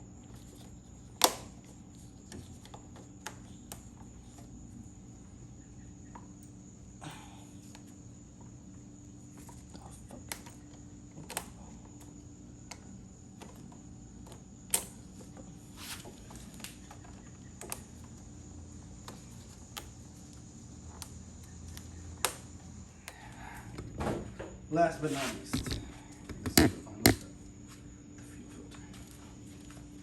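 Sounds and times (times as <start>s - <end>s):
tools clicking and knocking: 25.5s - 27.3s.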